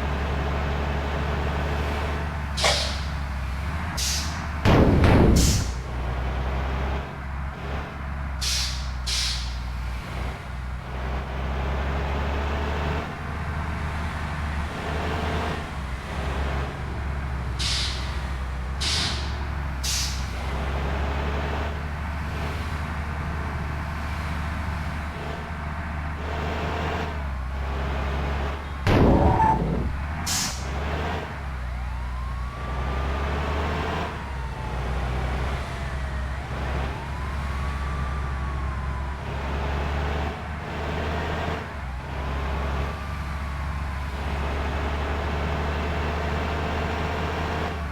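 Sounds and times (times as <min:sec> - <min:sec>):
bus diesel engine running: 0:00.0 - 0:47.9
air brake hisses: 0:02.6 - 0:03.2, 0:04.0 - 0:04.4, 0:08.4 - 0:09.6, 0:17.6 - 0:18.2, 0:18.8 - 0:20.3, 0:29.2 - 0:30.7
wailing siren tone: 0:28.9 - 0:30.2, 0:31.4 - 0:40.3.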